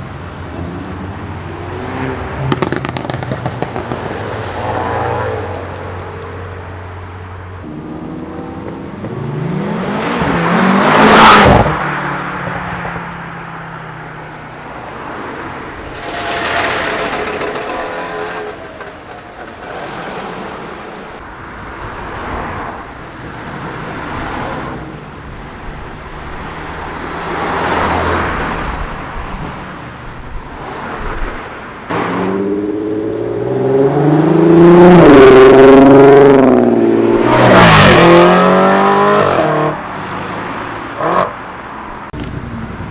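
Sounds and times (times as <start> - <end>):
cars driving past: 0.2 - 42.9
car accelerating past: 31.9 - 41.3.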